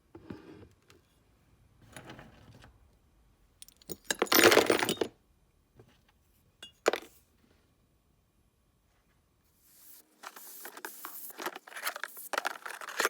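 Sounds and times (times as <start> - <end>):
metal parts clinking and rattling: 3.6 - 5.1, 11.5 - 13.0.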